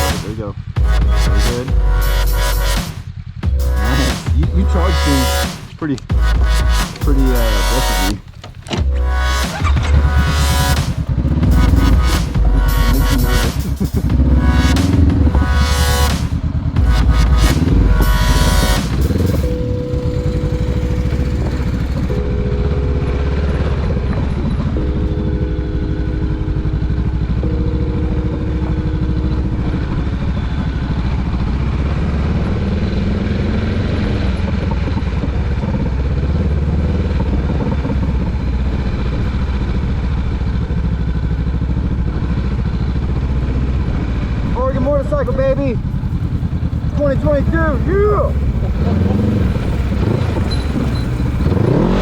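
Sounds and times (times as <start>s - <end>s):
held tones changing pitch: 0.0s - 31.8s
motorcycle engine rumbling: 0.0s - 52.0s.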